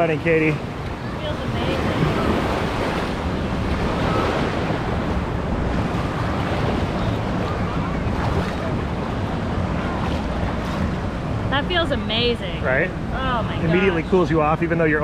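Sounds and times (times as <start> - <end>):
wind noise on microphone: 0.6 - 12.3.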